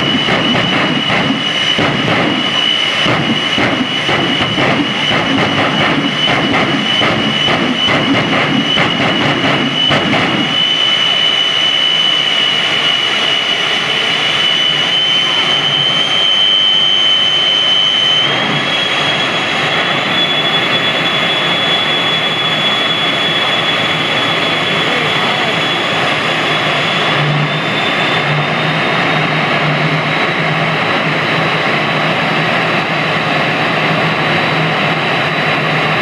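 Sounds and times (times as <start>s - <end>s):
jet engine roaring with turbine whine: 0.0s - 36.0s.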